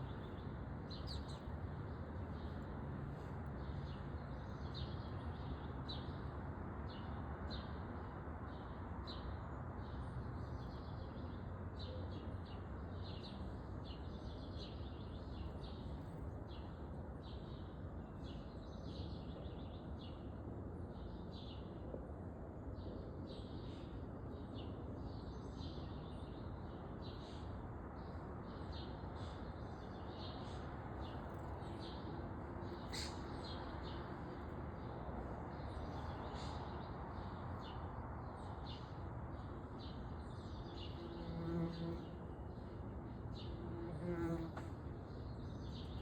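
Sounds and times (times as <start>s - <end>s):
outdoor background noise: 0.0s - 46.0s
songbirds chirping: 0.0s - 46.0s
insect buzzing: 41.0s - 42.2s.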